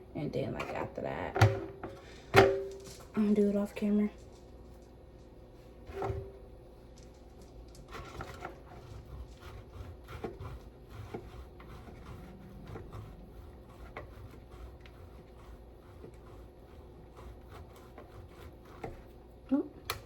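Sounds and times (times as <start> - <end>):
cheese grating scrapes: 7.0 - 19.2.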